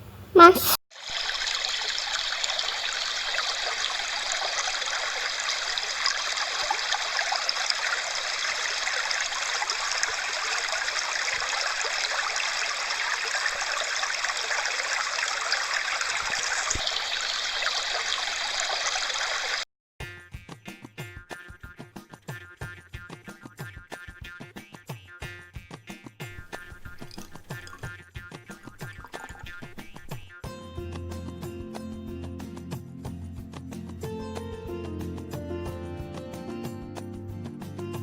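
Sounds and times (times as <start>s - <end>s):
running water rushing: 0.4s - 19.6s, 26.4s - 27.9s, 28.6s - 30.3s
music: 20.0s - 29.6s, 30.2s - 38.0s.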